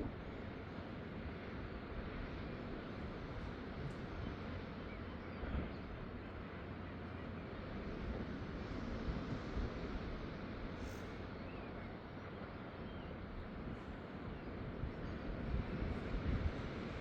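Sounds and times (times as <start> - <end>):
wind buffeting microphone: 13.2 - 17.0.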